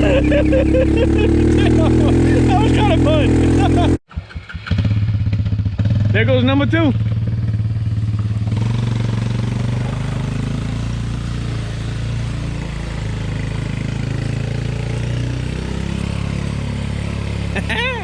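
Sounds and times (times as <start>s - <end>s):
small engine running under load: 0.0s - 6.1s.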